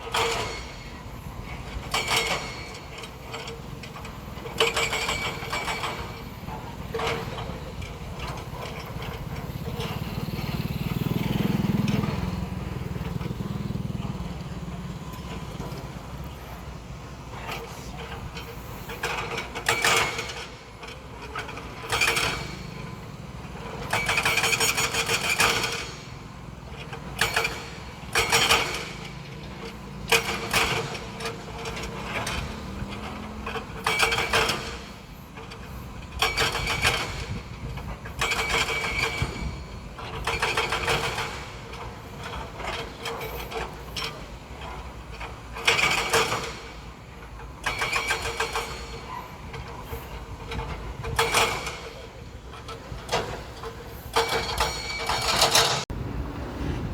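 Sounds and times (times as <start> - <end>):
metallic clanking and squealing: 0.1 - 55.9
machinery engine rumble: 5.4 - 24.4, 48.9 - 56.9.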